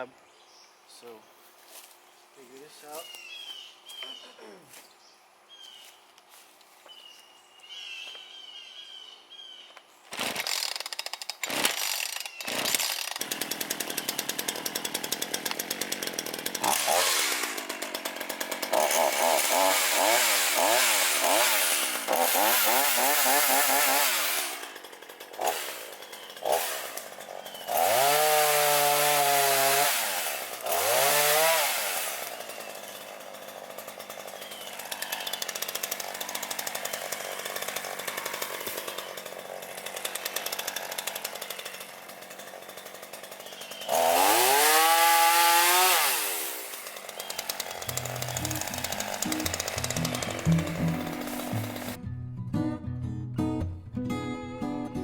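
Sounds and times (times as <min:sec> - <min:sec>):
chainsaw engine revving: 0:10.1 - 0:52.0
chainsaw pull-start: 0:10.1 - 0:52.0.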